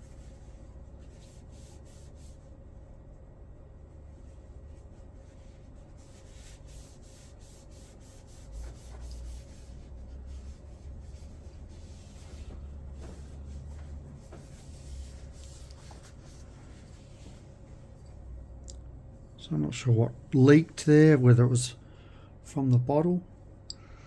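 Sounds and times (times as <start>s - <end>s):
tissue rubbing and wiping: 0.0s - 18.4s
low steady hum: 0.0s - 24.0s.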